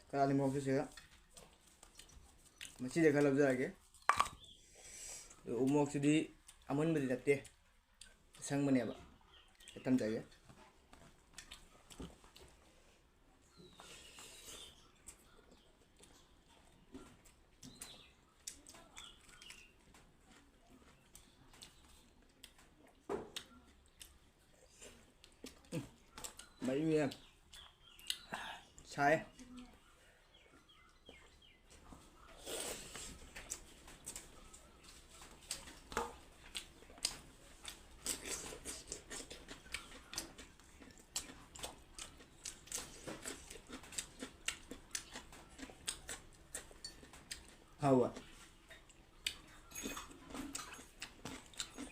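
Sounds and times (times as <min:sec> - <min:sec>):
chewing clicks: 0:11.0 - 0:12.5, 0:14.6 - 0:28.8, 0:32.9 - 0:51.9
lip smacks: 0:24.8 - 0:28.4.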